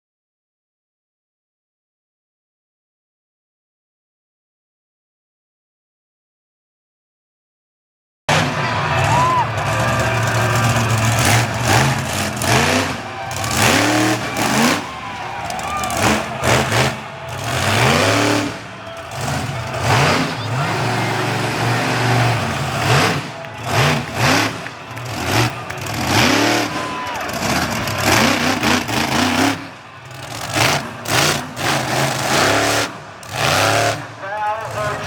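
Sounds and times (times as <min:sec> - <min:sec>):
monster truck engines revving: 0:08.3 - 0:35.0.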